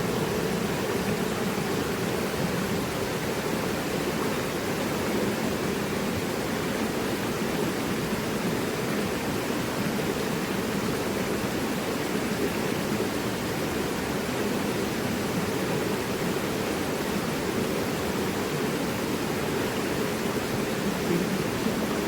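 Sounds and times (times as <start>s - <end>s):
river rushing over rocks: 0.0s - 22.0s.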